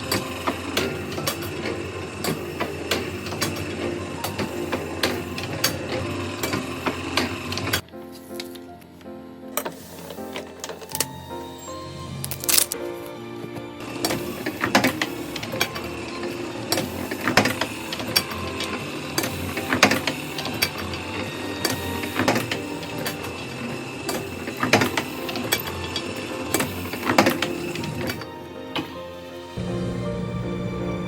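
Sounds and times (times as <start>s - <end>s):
printing press clack: 0.0s - 7.9s, 13.9s - 28.2s
printing press clattering: 0.0s - 7.9s, 13.5s - 29.0s.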